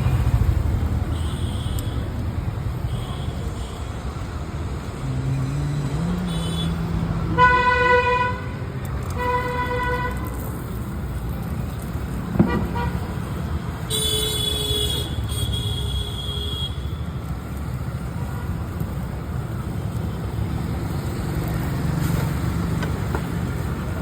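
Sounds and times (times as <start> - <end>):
steady traffic noise: 0.0 - 24.0
vehicle horns honking: 1.1 - 2.0, 6.2 - 8.6, 9.2 - 10.3, 13.9 - 17.0.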